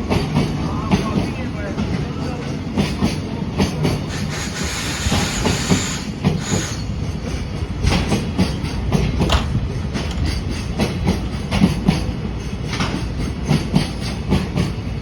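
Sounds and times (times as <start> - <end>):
freight train rumble: 0.0 - 15.0
wheel on rail hiss: 2.8 - 14.9
wheels clacking over rail joints: 5.1 - 15.0.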